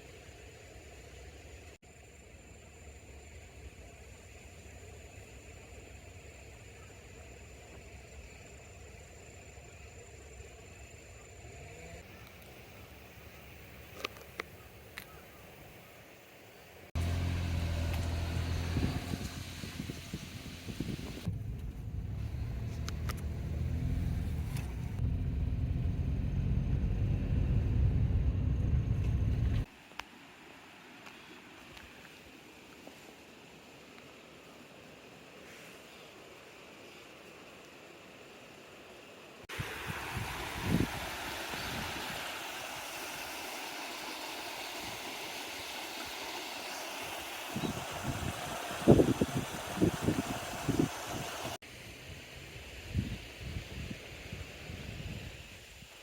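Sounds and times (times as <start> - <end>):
car engine and tyres rumbling: 17.0 - 29.7
wind thumping on microphone: 18.7 - 23.3, 39.5 - 42.2, 47.6 - 51.6
stream flowing: 29.6 - 51.6.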